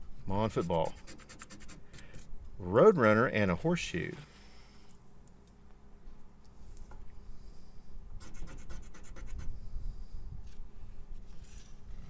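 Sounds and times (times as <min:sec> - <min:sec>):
scratch card being scratched: 0:00.5 - 0:01.8, 0:08.2 - 0:09.5.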